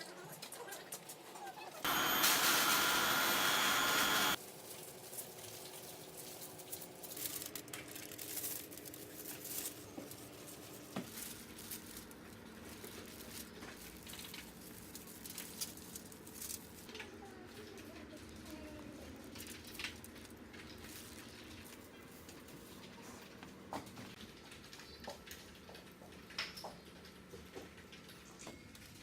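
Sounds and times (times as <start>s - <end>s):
electric drill running: 1.8s - 4.4s.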